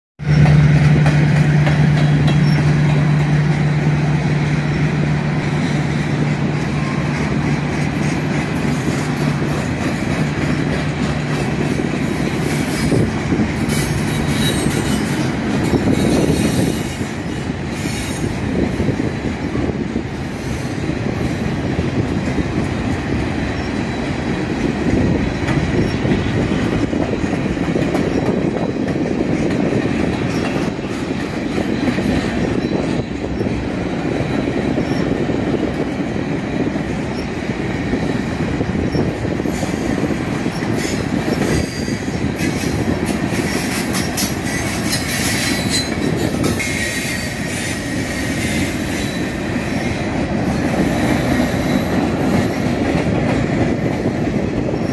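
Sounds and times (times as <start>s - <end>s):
train wheels rumbling on rails: 0.2s - 54.9s
high wheel squeals: 12.4s - 18.3s, 38.8s - 52.4s.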